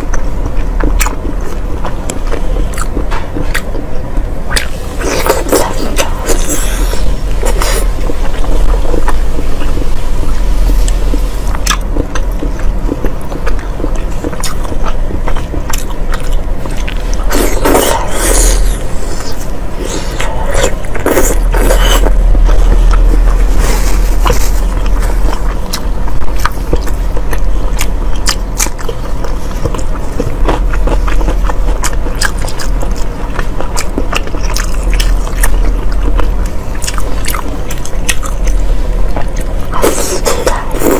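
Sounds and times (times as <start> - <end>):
wet chewing clicks and smacks: 0.0 - 3.9, 10.8 - 17.8, 24.8 - 40.7
steady low hum: 0.0 - 40.9.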